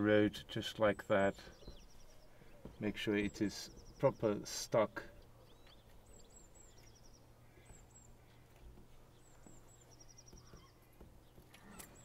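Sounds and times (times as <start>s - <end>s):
faint bird chirps: 1.3s - 4.4s, 5.0s - 12.0s
bird trill: 5.2s - 12.0s.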